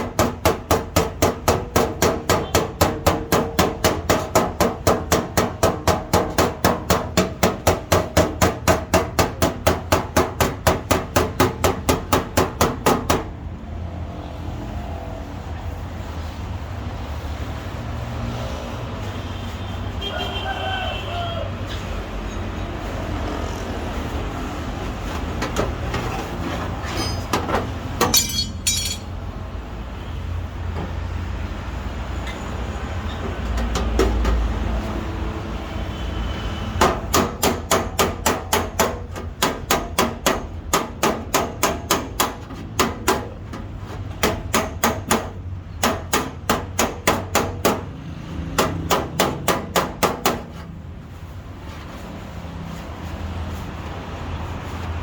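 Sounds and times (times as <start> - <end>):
hammer tapping on sheet metal: 0.0 - 13.4, 27.0 - 29.1, 33.4 - 34.5, 36.8 - 47.9, 48.6 - 50.7
metallic clink: 26.8 - 27.4, 28.0 - 29.2.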